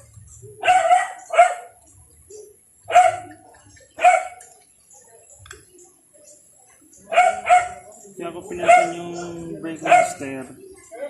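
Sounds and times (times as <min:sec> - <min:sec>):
dog barking: 0:00.6 - 0:01.8, 0:02.9 - 0:03.4, 0:04.0 - 0:04.4, 0:07.1 - 0:07.9, 0:08.6 - 0:10.3.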